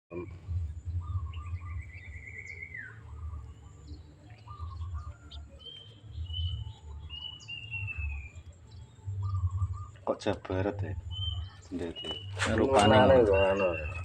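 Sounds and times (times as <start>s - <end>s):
low rumble: 0.1s - 2.4s
bird pulsed calls and chirps: 0.1s - 14.0s.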